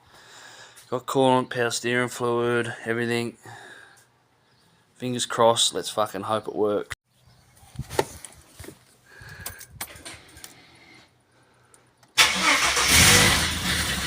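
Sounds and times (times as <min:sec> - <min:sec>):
car engine starting and idling: 0:12.2 - 0:14.0.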